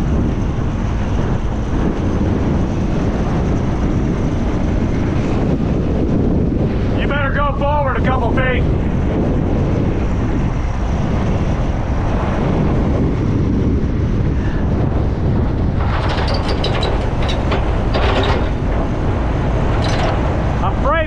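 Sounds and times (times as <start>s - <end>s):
wind buffeting microphone: 0.0s - 21.0s
diesel truck engine running: 14.6s - 21.0s
sharp metal clanks: 15.8s - 20.5s.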